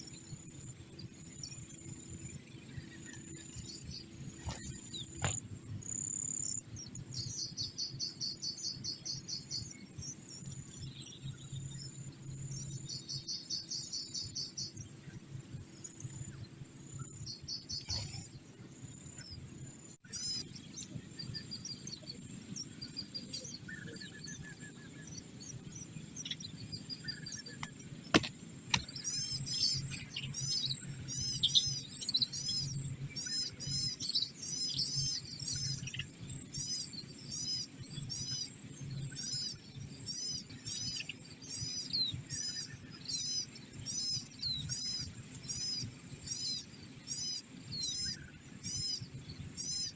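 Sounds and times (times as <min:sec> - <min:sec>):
small birds chirping: 0:00.0 - 0:49.9
sharp click: 0:27.6 - 0:28.9.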